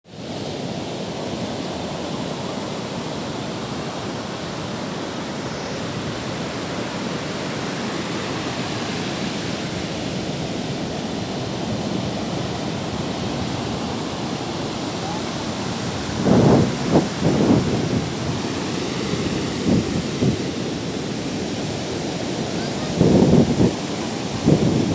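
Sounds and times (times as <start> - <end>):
sea waves breaking on shore: 0.1 - 24.9
wind on microphone: 9.5 - 24.9.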